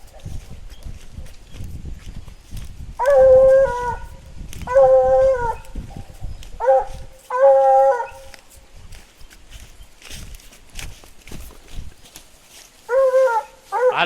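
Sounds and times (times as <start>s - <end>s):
hound baying: 3.0s - 5.7s, 6.6s - 8.4s, 12.9s - 14.0s.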